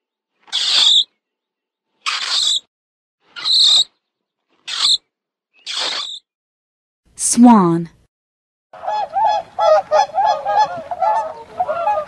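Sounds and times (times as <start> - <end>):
mole squeaking: 0.5 - 1.0, 2.1 - 2.7, 3.4 - 3.9, 4.7 - 5.0, 5.6 - 6.2.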